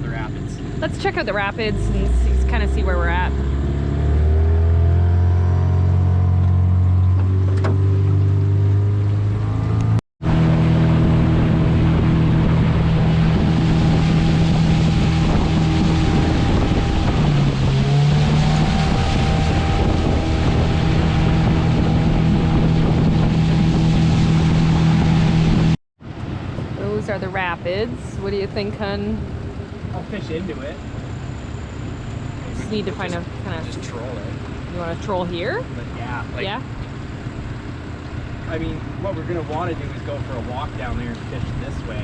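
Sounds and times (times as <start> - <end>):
outboard motor running: 0.0 - 42.0
wind on microphone: 9.6 - 25.8.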